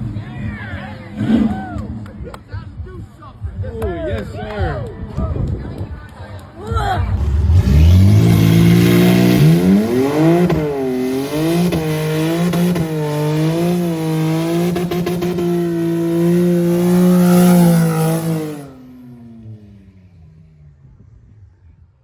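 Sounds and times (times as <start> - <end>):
car engine revving high: 7.0 - 20.3
spinning tires hissing: 7.1 - 19.2.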